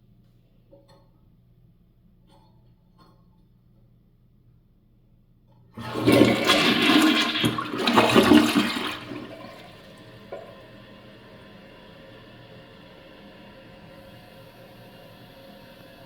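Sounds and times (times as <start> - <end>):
toilet flushing: 5.8 - 16.0.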